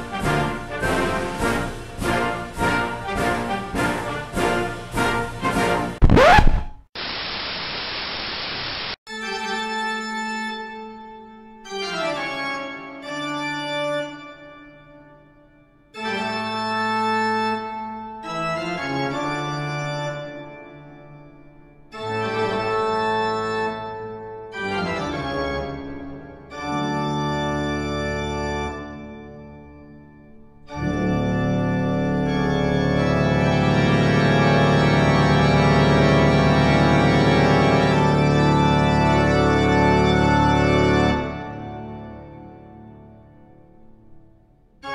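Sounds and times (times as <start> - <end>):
brass music: 0.0 - 6.8
steady static hiss: 6.0 - 9.0
organ playing slow chords: 16.0 - 21.0, 21.9 - 43.3.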